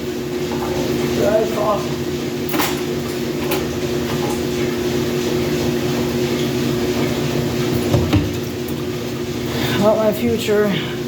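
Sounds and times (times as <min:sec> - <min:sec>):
washing machine drone: 0:00.0 - 0:11.0.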